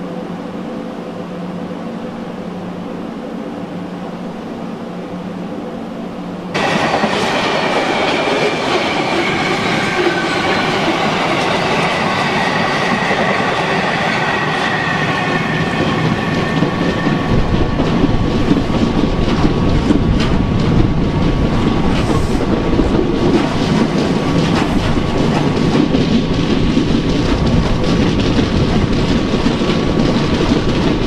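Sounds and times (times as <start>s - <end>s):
train wheels rumbling: 6.5s - 31.0s.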